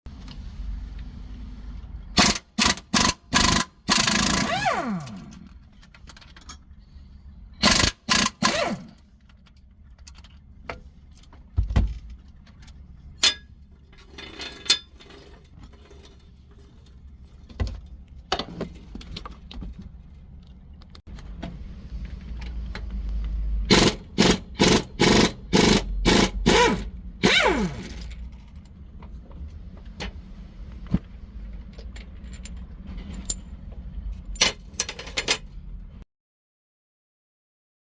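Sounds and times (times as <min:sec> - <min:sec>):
impact wrench bursts: 0:02.2 - 0:05.4, 0:07.6 - 0:09.0, 0:23.7 - 0:28.1
tool handling clicks and knocks: 0:05.1 - 0:06.8, 0:08.9 - 0:21.6, 0:30.8 - 0:35.6.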